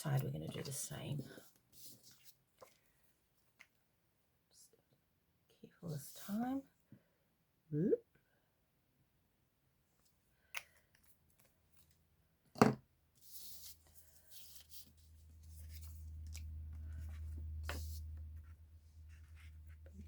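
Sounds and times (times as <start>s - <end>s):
paper rustling and rubbing: 0.2s - 2.8s, 13.2s - 20.0s
low hum: 15.0s - 20.0s.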